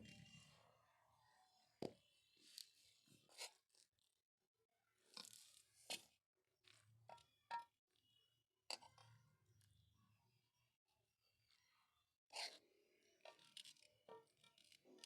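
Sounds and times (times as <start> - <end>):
faint clicks and scrapes: 1.8 - 4.2, 5.0 - 9.9, 11.4 - 15.0.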